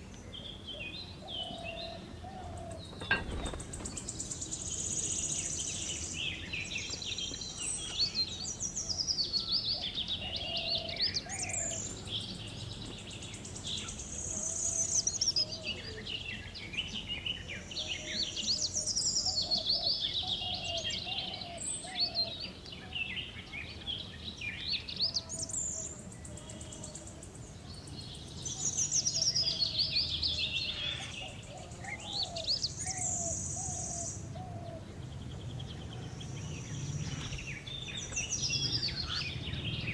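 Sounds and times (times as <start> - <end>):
faint lower bird calls: 0.0 - 39.9
songbirds chirping and twittering: 0.0 - 39.9.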